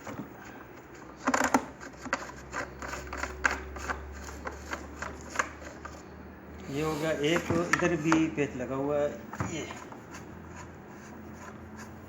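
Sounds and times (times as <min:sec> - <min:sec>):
screwdriver clicking and scraping: 0:06.6 - 0:08.3.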